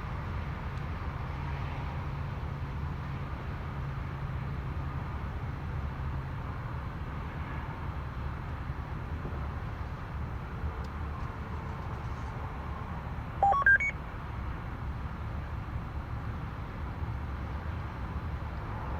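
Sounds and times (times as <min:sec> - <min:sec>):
short electronic beeps: 0:13.4 - 0:14.0.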